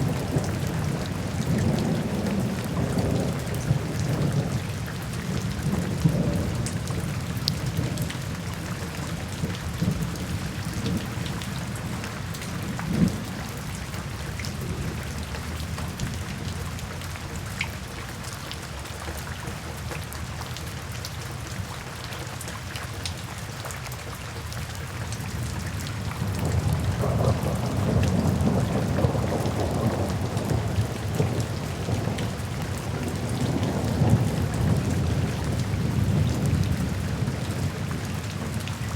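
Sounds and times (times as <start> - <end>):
rain hiss: 25.1 - 38.9
rolling thunder: 26.2 - 38.6.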